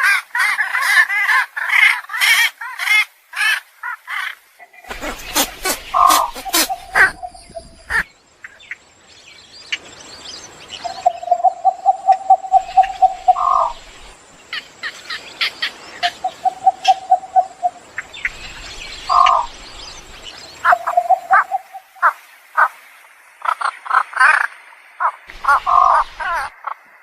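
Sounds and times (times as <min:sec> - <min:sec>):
bird chirps: 0:04.7 - 0:22.1
bird pulsed trill: 0:04.8 - 0:08.6, 0:10.5 - 0:14.2, 0:15.9 - 0:22.0.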